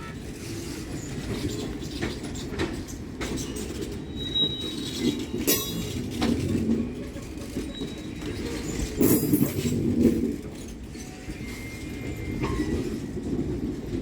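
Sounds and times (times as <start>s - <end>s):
train rumbling past: 0.0s - 14.0s
high wheel squeal: 3.4s - 6.0s, 7.0s - 9.3s, 10.9s - 13.2s
wheels knocking over rail joints: 5.0s - 10.3s.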